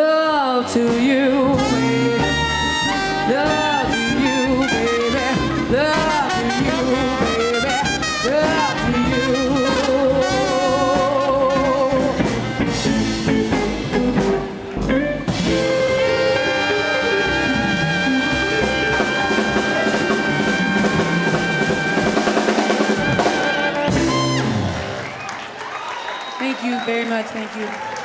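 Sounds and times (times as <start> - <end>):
live band playing: 0.0 - 27.8
drum fills: 0.7 - 25.6
drum roll: 0.8 - 25.6
tenor saxophone: 1.4 - 25.3.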